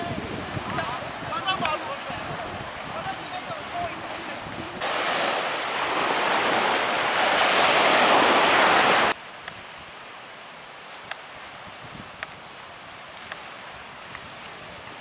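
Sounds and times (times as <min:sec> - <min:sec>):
surf: 0:00.0 - 0:09.6
loud rushing water and wind: 0:00.0 - 0:15.0.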